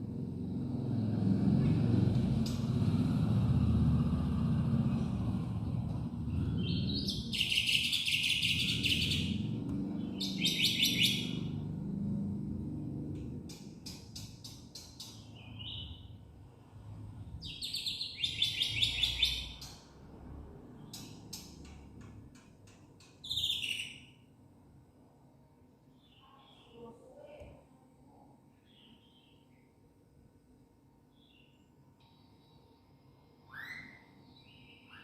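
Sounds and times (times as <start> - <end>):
low rumble: 0.0 - 7.4.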